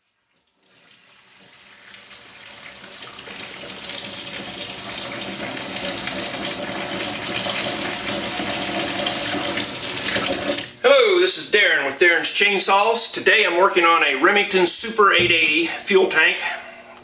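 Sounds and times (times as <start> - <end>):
running water: 0.0 - 10.7.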